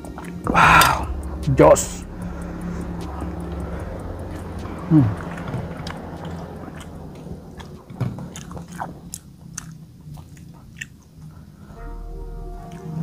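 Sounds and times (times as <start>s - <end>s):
person chewing: 4.3s - 11.4s
wet mouth clicks and smacks: 7.6s - 11.1s.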